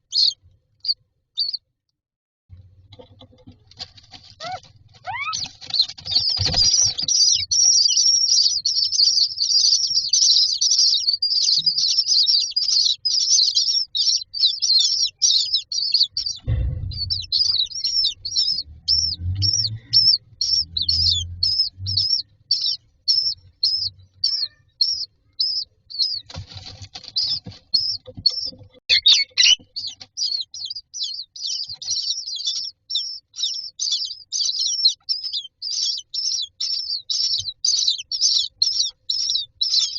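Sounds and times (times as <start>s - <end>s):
nestlings begging calls: 0.0s - 1.6s, 4.4s - 39.9s
bumps and knocks in nest: 2.5s - 7.4s, 16.2s - 19.4s.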